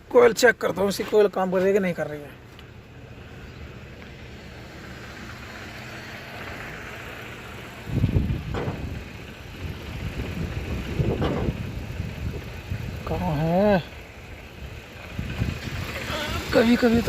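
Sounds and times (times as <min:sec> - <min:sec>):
car engine idling with misfire: 0:02.2 - 0:17.0.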